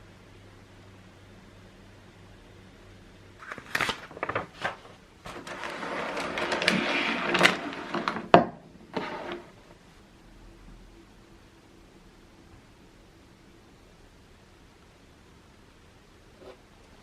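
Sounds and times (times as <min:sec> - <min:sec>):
rustling or scraping: 0:03.4 - 0:09.8.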